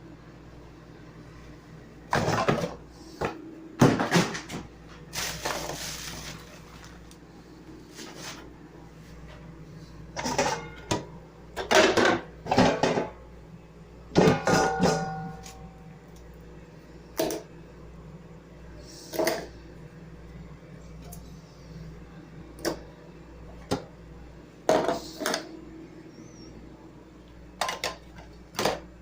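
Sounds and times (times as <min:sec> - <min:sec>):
kitchenware clattering: 0:10.2 - 0:13.1, 0:14.2 - 0:15.7.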